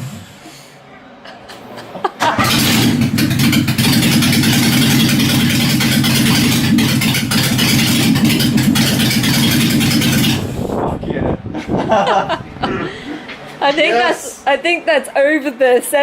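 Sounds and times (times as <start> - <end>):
car engine starting: 2.2 - 10.9
loud engine running: 2.3 - 10.9.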